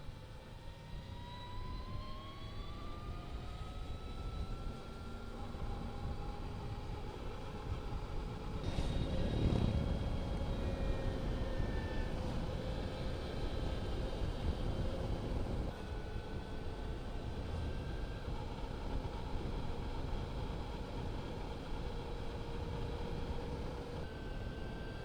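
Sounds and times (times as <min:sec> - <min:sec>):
electric motor whine: 0:08.6 - 0:18.2.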